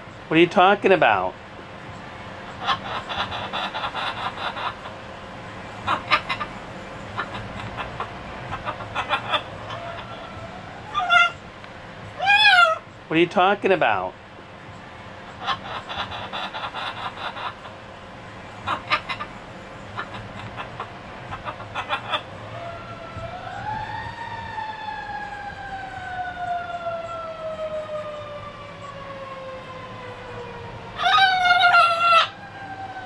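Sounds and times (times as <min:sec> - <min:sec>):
parrot rattling trills: 0:02.5 - 0:05.0, 0:05.7 - 0:11.4, 0:15.3 - 0:17.8, 0:18.5 - 0:22.5
parrot wavering call: 0:02.6 - 0:05.0, 0:05.8 - 0:11.4, 0:12.2 - 0:12.9, 0:15.3 - 0:17.8, 0:18.6 - 0:23.8, 0:31.0 - 0:32.4
parrot siren-like whistle: 0:09.0 - 0:11.4, 0:21.8 - 0:29.6, 0:31.0 - 0:33.0.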